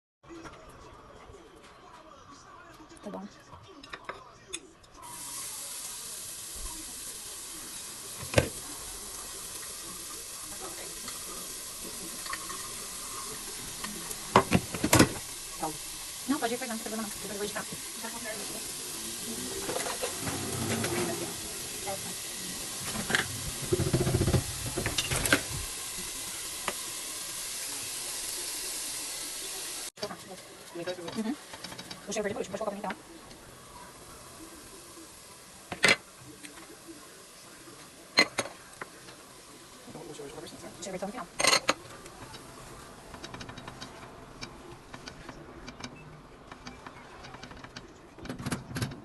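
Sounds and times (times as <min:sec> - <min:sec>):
food sizzling in a pan: 0:05.0 - 0:45.2
spoon stirring and knocking pan: 0:22.8 - 0:25.4.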